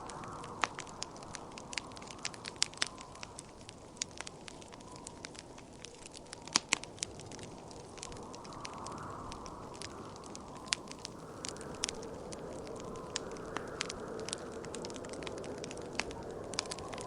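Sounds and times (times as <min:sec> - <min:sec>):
wood fire crackling and popping: 0:00.0 - 0:17.0
wind-like rush: 0:06.3 - 0:17.0.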